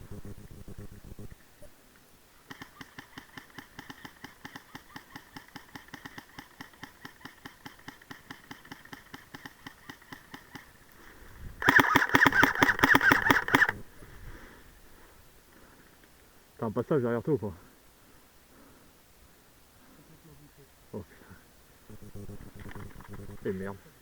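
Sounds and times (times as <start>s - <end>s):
loud rapid rattle: 11.6s - 13.8s.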